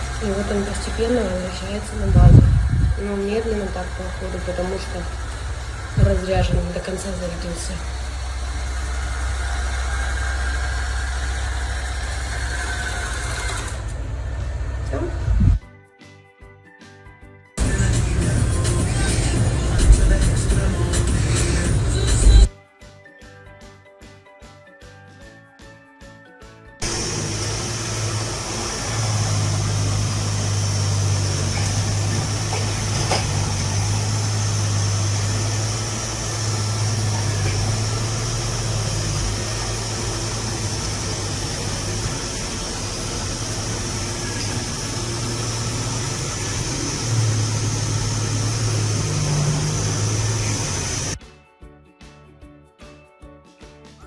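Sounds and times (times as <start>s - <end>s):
robot vacuum motor whirring: 7.8s - 14.0s, 26.8s - 51.2s.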